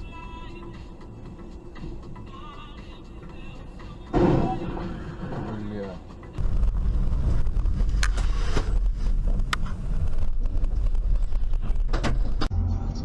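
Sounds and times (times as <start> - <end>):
road and engine rumble: 0.0 - 13.0
wind noise: 6.4 - 12.5.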